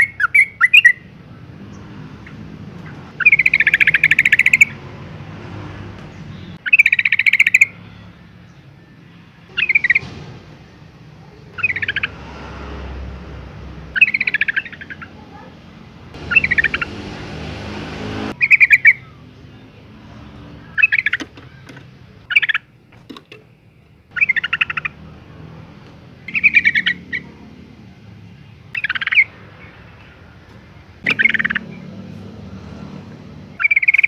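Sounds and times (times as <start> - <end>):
bulbul calling: 0.0 - 1.1, 1.7 - 4.8, 6.3 - 7.8, 9.5 - 10.1, 11.5 - 12.2, 13.9 - 15.4, 16.1 - 19.2, 20.7 - 22.7, 24.1 - 25.2, 26.2 - 27.4, 28.7 - 30.2, 31.0 - 32.0, 33.5 - 34.0.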